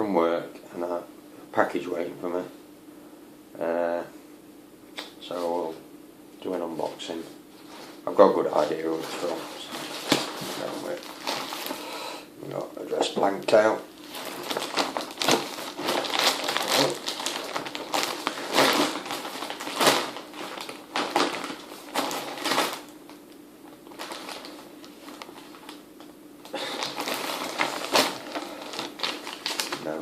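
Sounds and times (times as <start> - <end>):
packaging crinkling and rustling: 7.6 - 11.8, 13.0 - 30.0.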